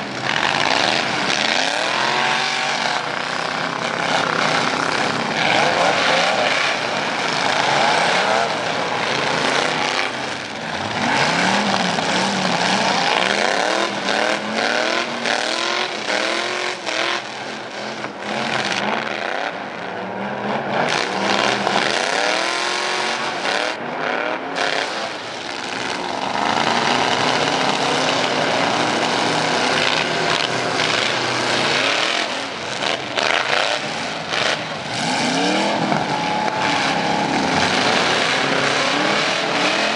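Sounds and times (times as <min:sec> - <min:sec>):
truck engine revving: 0:00.0 - 0:39.9.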